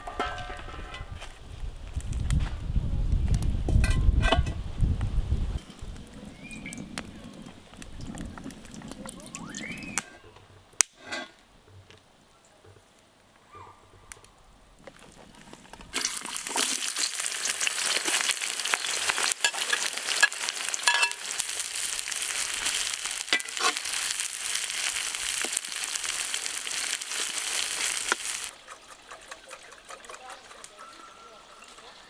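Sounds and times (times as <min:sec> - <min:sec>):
food sizzling in hot oil: 0:14.9 - 0:30.0.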